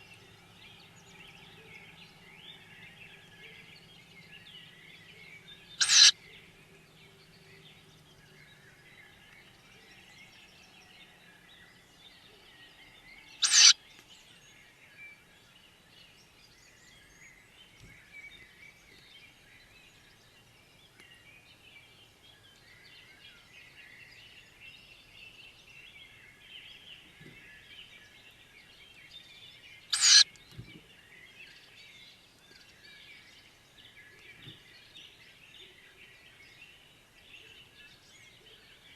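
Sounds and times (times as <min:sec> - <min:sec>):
faint birdsong: 0:00.0 - 0:38.9
owl chicks hissing begging calls: 0:05.8 - 0:06.1, 0:13.4 - 0:13.8, 0:29.9 - 0:30.2.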